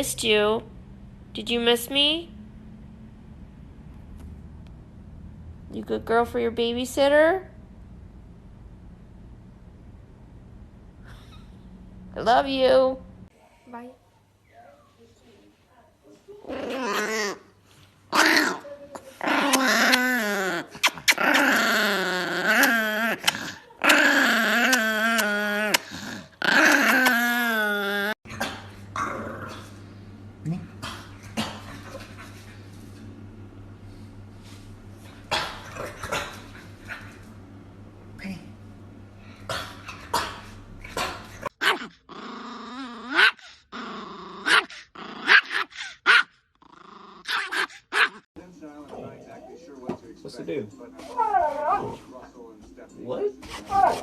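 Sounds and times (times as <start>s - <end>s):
dog whining growls: 16.4s - 17.5s, 18.1s - 29.8s, 40.9s - 46.0s, 46.6s - 48.2s, 51.0s - 52.1s, 53.4s - 54.0s
small dog yapping: 41.0s - 41.9s, 47.3s - 48.2s.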